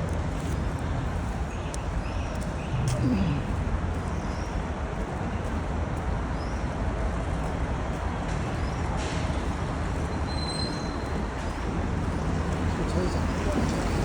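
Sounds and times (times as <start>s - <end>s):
low traffic rumble: 0.0s - 14.0s
street market din: 2.6s - 3.6s.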